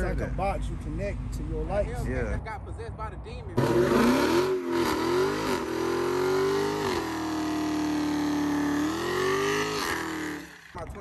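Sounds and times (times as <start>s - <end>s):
engine accelerating hard: 3.6s - 10.8s.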